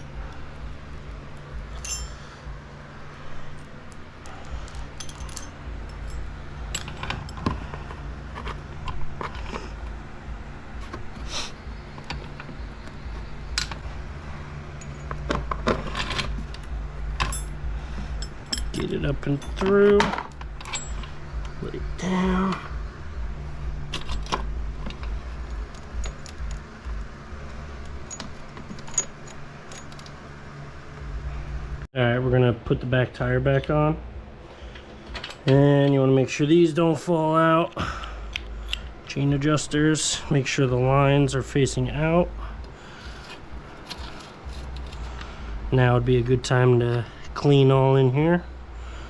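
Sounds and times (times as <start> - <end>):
steady low hum: 0.0 - 49.0
metal chain links clinking: 1.3 - 2.4, 3.3 - 7.6, 14.7 - 22.6, 23.8 - 26.7, 27.8 - 30.2, 43.2 - 45.2.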